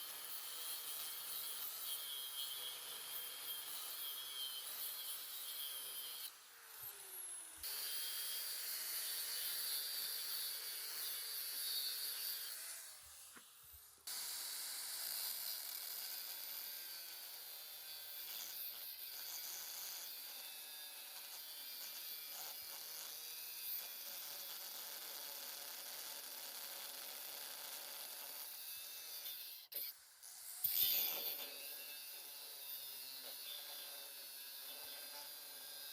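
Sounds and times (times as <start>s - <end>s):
tool rasping on a surface: 15.1s - 35.9s.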